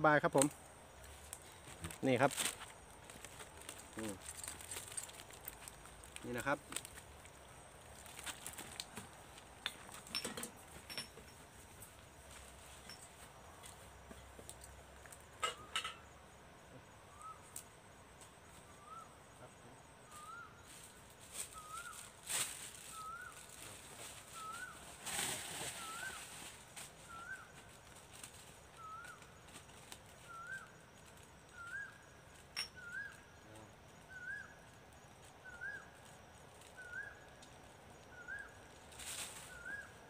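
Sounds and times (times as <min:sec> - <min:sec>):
gear rustling and clattering: 0:01.7 - 0:07.1.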